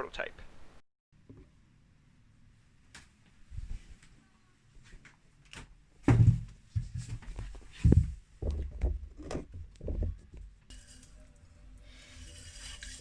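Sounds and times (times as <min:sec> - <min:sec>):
dull thuds and knocks: 0:06.0 - 0:10.5.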